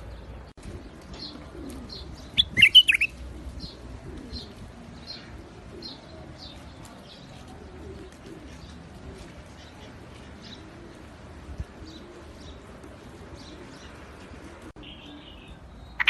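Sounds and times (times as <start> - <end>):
doves cooing: 0.1 - 15.4
bird chirps: 2.2 - 3.2.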